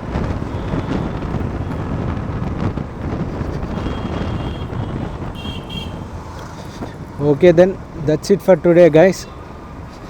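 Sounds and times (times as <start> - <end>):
wind buffeting microphone: 0.0 - 7.9
road and vehicle noise: 0.0 - 10.0.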